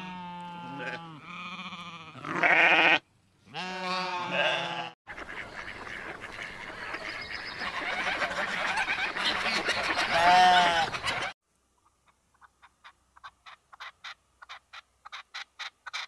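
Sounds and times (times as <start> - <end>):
lambs bleating: 0.0 - 5.0, 10.2 - 10.9.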